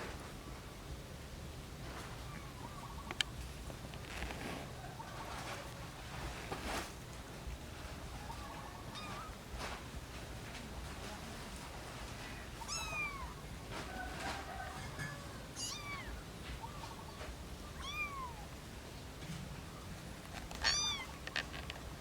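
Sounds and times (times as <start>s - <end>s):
kitten mewing: 20.6s - 21.2s.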